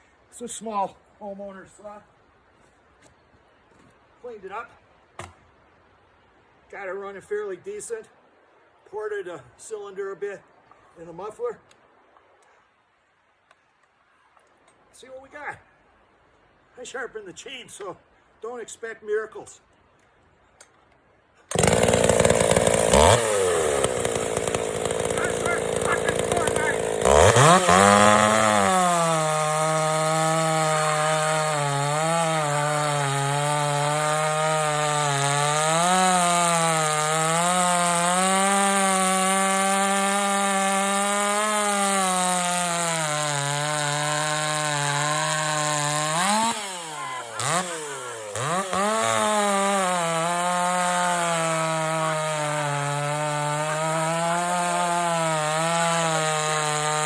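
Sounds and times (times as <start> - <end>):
chainsaw cutting wood: 21.5 - 57.0.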